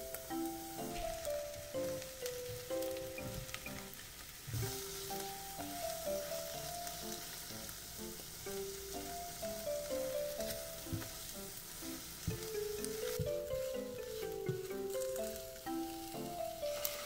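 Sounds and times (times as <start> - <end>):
plinking background music: 0.0 - 4.0, 4.6 - 17.0
mushrooms sizzling in a pan: 0.0 - 17.0
spatula stirring: 4.6 - 17.0.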